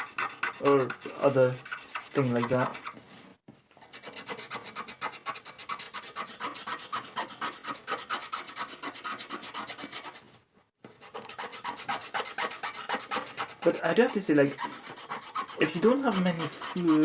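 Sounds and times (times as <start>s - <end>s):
scrubbing strokes: 0.0s - 3.4s, 11.5s - 17.0s.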